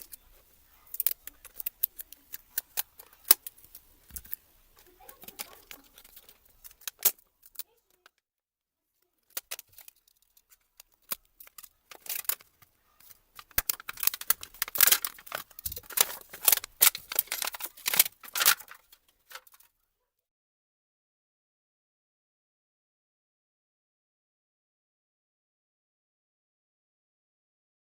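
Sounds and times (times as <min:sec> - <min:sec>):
laptop keyboard plastic clicks: 0:10.8 - 0:19.6.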